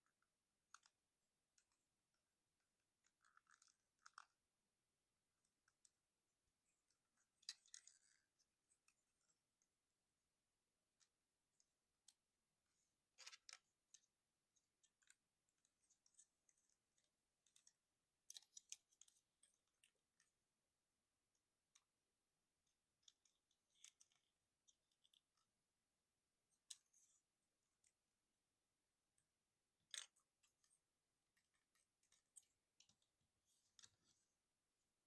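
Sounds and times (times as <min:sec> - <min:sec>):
plastic toy parts clicking: 0:17.4 - 0:20.2.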